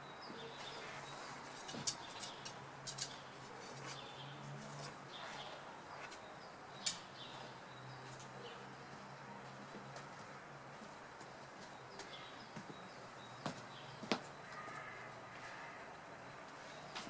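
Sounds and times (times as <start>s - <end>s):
small birds chirping: 0.0s - 9.2s, 11.4s - 15.6s
low hum of town background: 0.0s - 17.0s.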